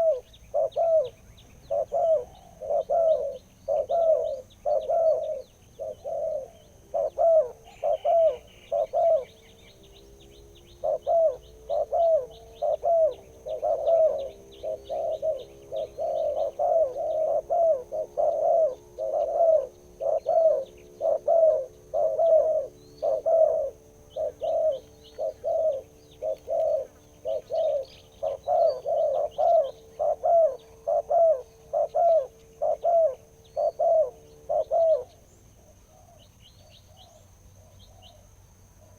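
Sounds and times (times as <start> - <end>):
dove cooing: 0.0 - 38.2
small birds chirping: 0.0 - 38.9.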